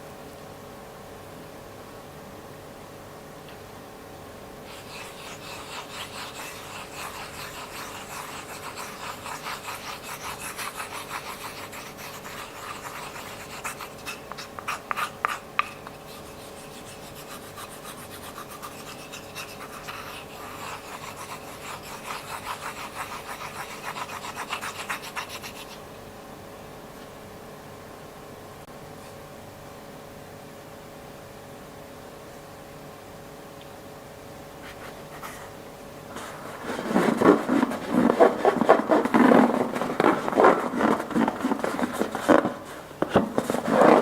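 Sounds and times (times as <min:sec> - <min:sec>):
slime being scraped in container: 0:04.7 - 0:17.5, 0:36.2 - 0:44.0.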